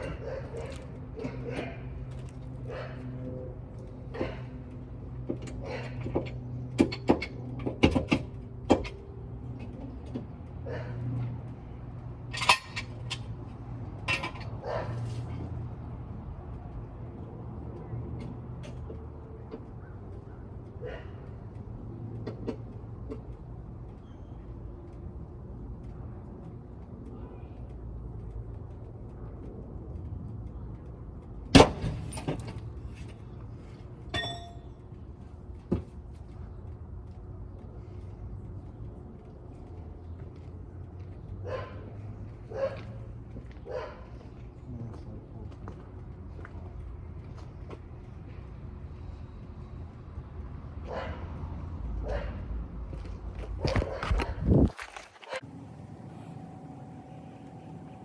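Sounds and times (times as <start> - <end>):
tools clinking and knocking: 12.3 - 13.4, 34.1 - 34.7
ringing metallic clang: 34.2 - 34.8, 55.4 - 58.0
low steady rumble: 55.4 - 58.0
steady low hum: 55.4 - 58.0.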